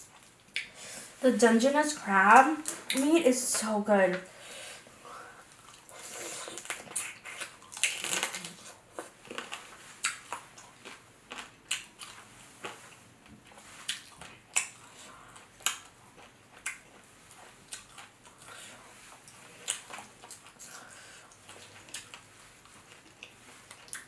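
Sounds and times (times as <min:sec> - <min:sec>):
crab shell cracking and crunching: 0:06.6 - 0:10.4.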